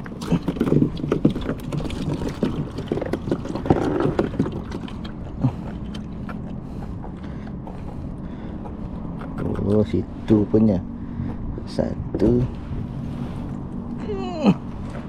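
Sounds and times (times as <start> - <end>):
gear knocking and clattering: 0.0 - 9.9.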